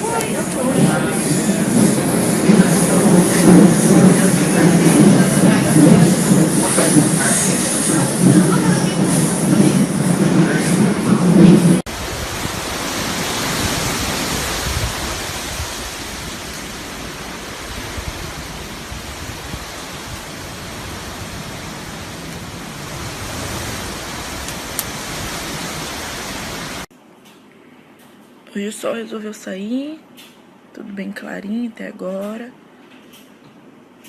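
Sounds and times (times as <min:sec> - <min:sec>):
storm wind rushing: 0:00.0 - 0:26.9.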